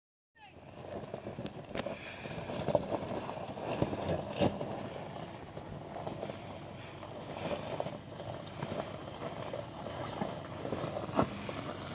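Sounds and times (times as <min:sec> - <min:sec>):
vehicle rumbling off-road: 0:00.4 - 0:11.9.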